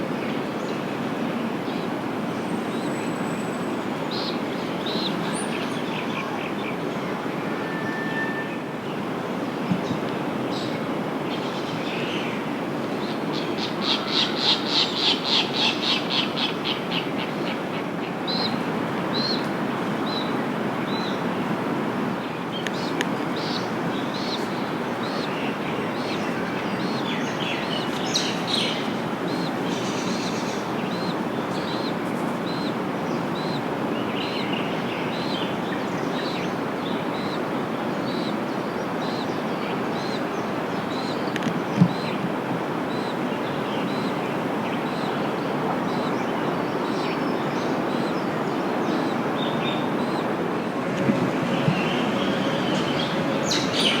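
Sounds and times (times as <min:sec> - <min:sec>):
low rumble of traffic: 0:16.4 - 0:54.0.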